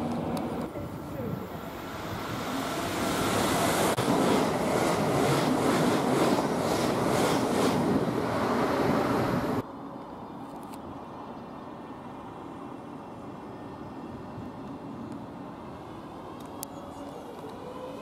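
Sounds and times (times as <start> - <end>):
rush of train wheels and air: 0.0 - 9.6.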